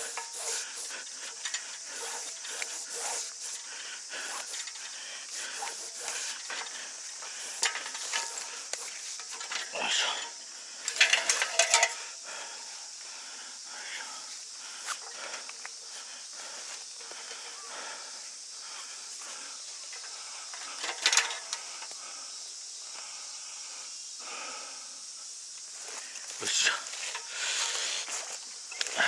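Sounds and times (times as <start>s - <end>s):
steady high hiss: 0.0s - 29.0s
equipment clattering and knocking: 10.9s - 12.0s.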